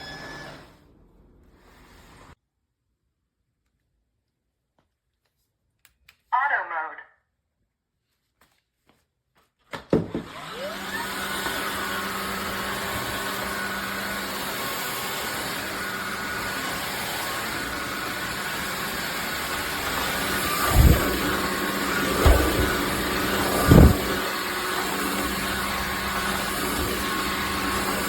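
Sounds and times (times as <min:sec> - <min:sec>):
vacuum mop motor whining: 0:00.0 - 0:00.9, 0:10.0 - 0:28.0
low thumps: 0:19.8 - 0:24.4.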